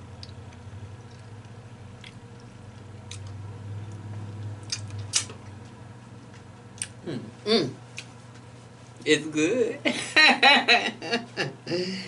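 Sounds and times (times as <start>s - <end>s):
low steady hum: 0.0s - 12.0s
close-up chewing: 0.1s - 5.7s
wet mouth clicks and smacks: 4.6s - 5.3s.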